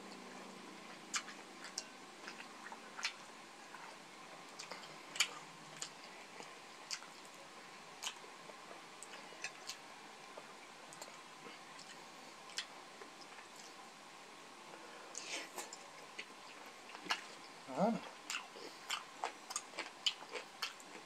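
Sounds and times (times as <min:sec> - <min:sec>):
chewing food: 0:00.0 - 0:13.8, 0:15.1 - 0:21.0.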